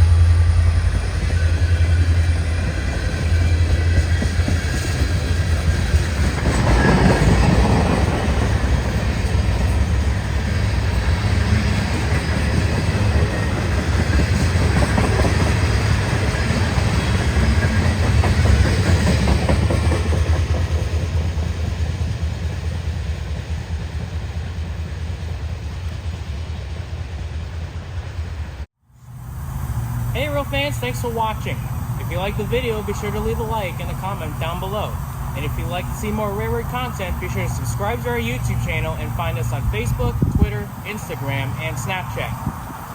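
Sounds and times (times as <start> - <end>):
train rumbling past: 0.0 - 42.9
wheels clicking over rail joints: 2.4 - 21.7.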